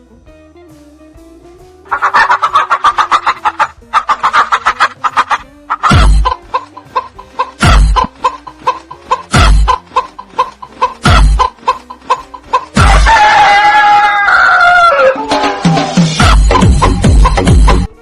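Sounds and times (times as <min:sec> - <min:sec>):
chickens clucking: 0:01.9 - 0:15.5
heavy thudding beats: 0:03.2 - 0:13.4, 0:16.0 - 0:17.9
rooster crowing: 0:12.8 - 0:16.0.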